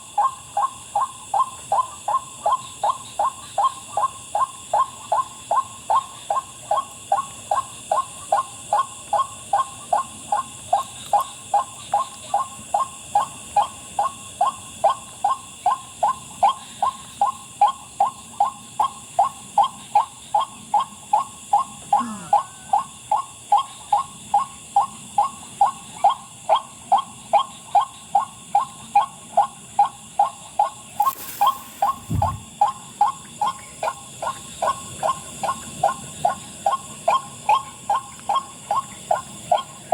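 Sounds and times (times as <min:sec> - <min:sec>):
night insects trilling: 0:00.0 - 0:39.9
bird calling wak: 0:31.0 - 0:32.5.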